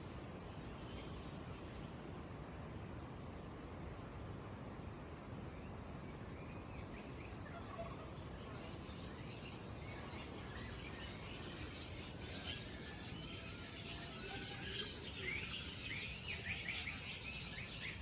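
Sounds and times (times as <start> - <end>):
high-pitched cricket trill: 0.0 - 18.0
low background hum: 0.0 - 18.0
faint bird chirps: 5.4 - 18.0.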